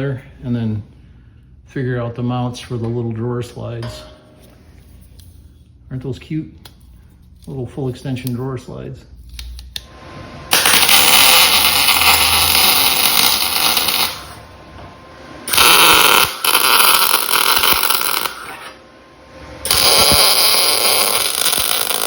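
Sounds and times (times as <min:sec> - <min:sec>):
welding arc crackling: 0:10.5 - 0:14.6, 0:15.4 - 0:18.8, 0:19.4 - 0:22.0.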